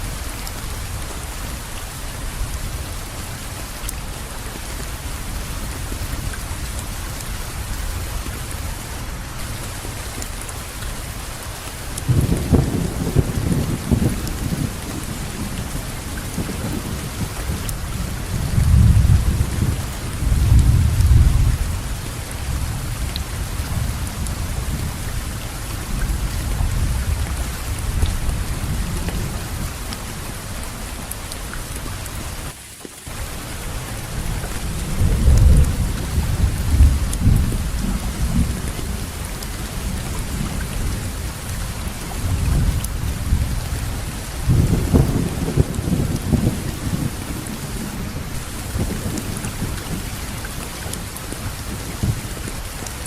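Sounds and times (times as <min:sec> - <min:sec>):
heavy rain falling: 0:00.0 - 0:53.0
low rolling thunder: 0:11.9 - 0:30.2, 0:33.7 - 0:52.5.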